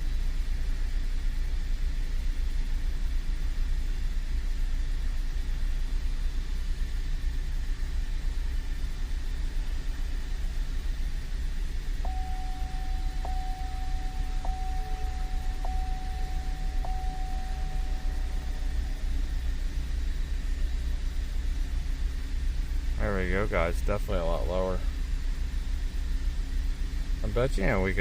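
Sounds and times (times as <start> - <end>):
car engine running: 0.6 - 28.0
thin steady tone: 11.8 - 22.0.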